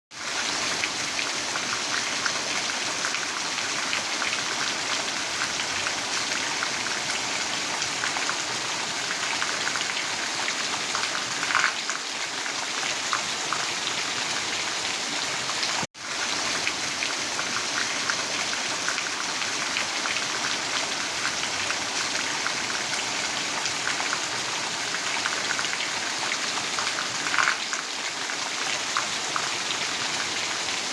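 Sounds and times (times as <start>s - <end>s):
steady rain falling: 0.4s - 30.9s
raindrops ticking on a surface: 11.0s - 12.0s, 26.8s - 28.0s.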